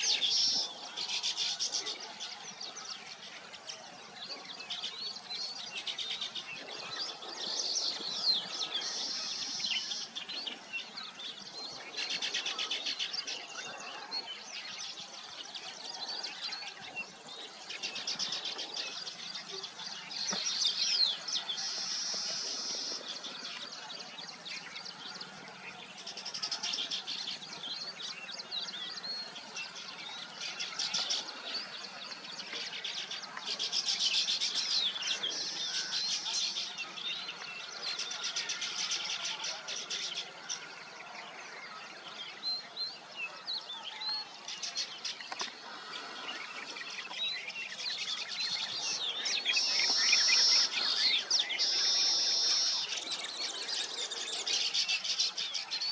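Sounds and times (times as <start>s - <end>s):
buzzy bird song bursts: 44.5s - 55.9s.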